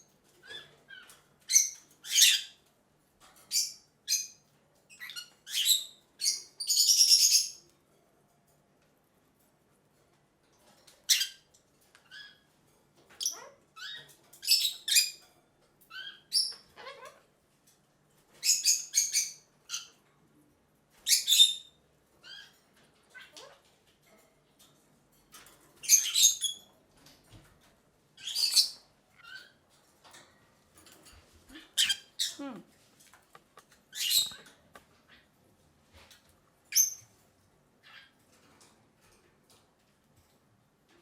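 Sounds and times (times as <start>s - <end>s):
birds chirping: 31.4s - 35.4s.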